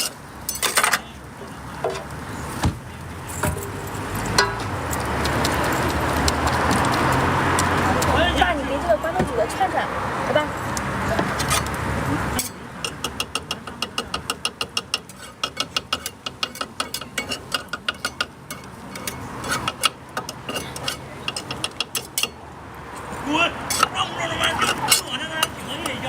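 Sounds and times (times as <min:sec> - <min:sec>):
street noise: 0:00.0 - 0:26.0
fast run of sharp clicks: 0:04.9 - 0:08.2.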